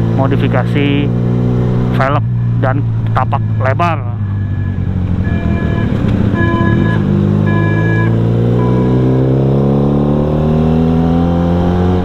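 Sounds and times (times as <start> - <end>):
motorcycle engine accelerating: 0.0 - 12.0
brief high tone: 3.2 - 9.0.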